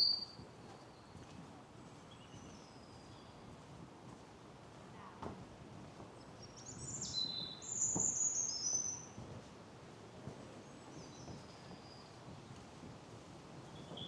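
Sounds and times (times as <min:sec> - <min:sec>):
songbird singing: 0:00.0 - 0:00.4
soft footsteps on a path: 0:00.4 - 0:06.4.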